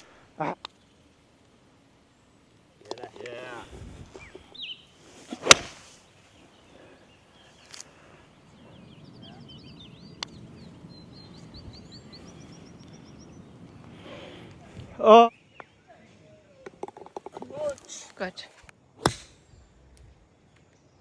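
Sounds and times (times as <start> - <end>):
steady outdoor hiss: 0.0 - 15.4, 16.7 - 20.5
small birds chirping: 4.0 - 5.0, 5.9 - 14.6, 16.7 - 20.4
loud sharp crack: 17.2 - 20.2.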